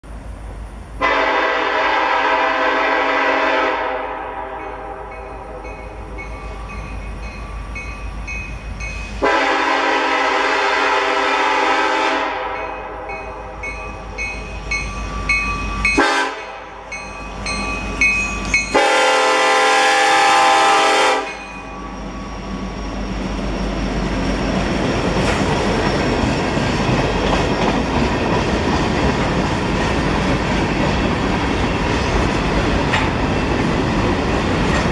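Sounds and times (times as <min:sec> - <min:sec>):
train rumble: 0:00.0 - 0:34.9
locomotive air horn blasts: 0:01.0 - 0:05.6, 0:09.2 - 0:13.1, 0:16.0 - 0:16.8, 0:18.7 - 0:21.4
bell ringing: 0:04.7 - 0:09.2, 0:12.6 - 0:18.8, 0:21.2 - 0:22.4.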